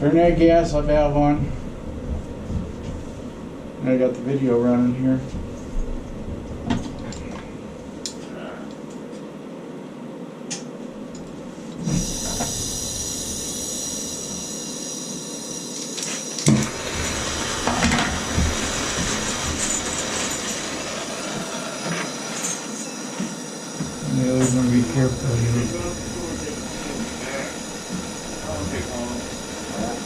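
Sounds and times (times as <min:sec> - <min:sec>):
gas torch hissing: 0:11.5 - 0:30.0.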